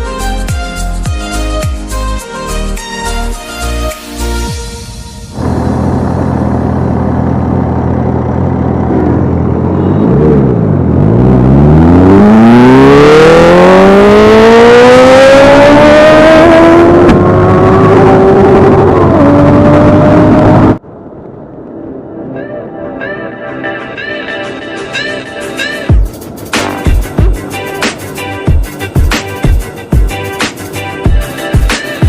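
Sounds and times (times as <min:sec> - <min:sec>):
motorcycle engine accelerating: 0:05.2 - 0:20.8.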